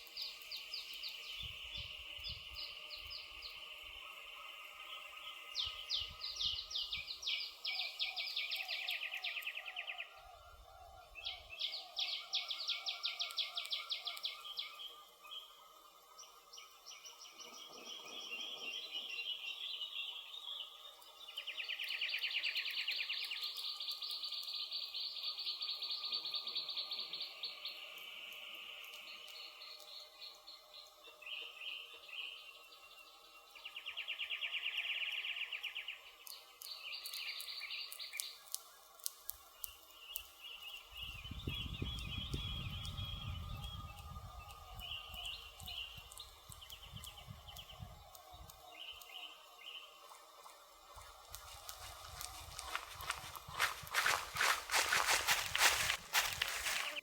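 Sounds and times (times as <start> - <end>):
bird chirps: 16.2 - 57.0
wood fire crackling: 50.0 - 57.0.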